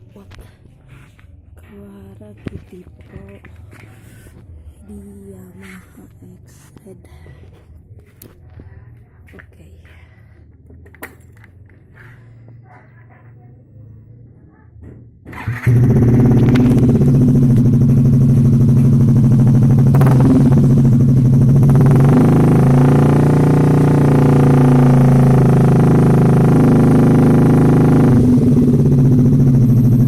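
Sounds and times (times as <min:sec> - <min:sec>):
scooter engine idling: 0:15.3 - 0:30.0.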